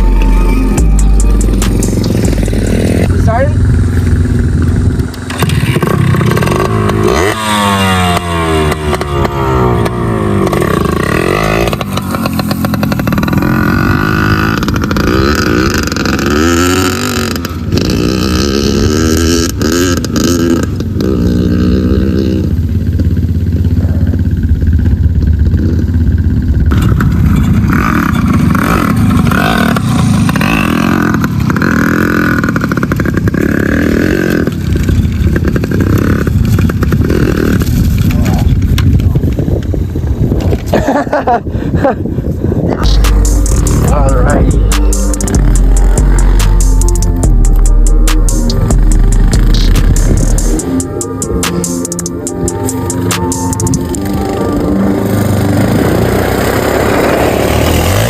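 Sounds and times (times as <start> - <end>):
dirt bike engine revving: 0.0 - 38.5, 42.8 - 58.0.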